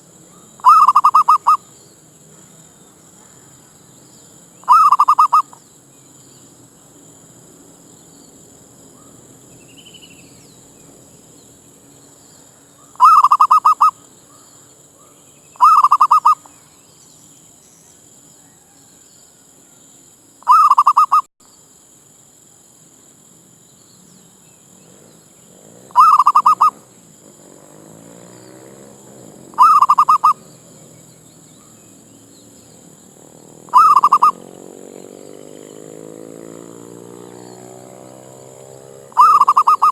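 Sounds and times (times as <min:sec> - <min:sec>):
dove cooing: 0:00.0 - 0:01.8, 0:04.6 - 0:05.6, 0:12.8 - 0:14.0, 0:15.6 - 0:16.5, 0:20.5 - 0:21.3, 0:25.0 - 0:39.9.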